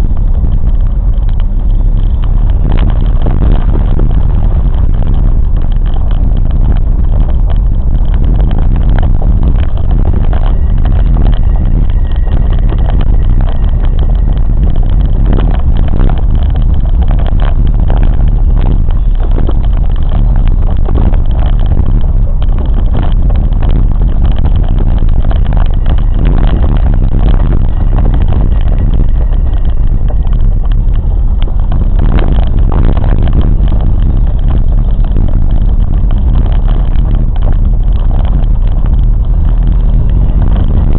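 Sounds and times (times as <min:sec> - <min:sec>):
knocks and rattles: 0:00.0 - 0:40.9
train rumbling along track: 0:00.0 - 0:40.9.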